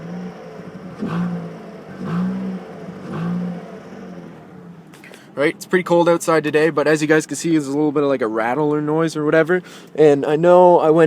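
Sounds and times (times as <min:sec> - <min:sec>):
car engine revving: 0:00.0 - 0:05.0
exhaust rattle: 0:00.0 - 0:08.5.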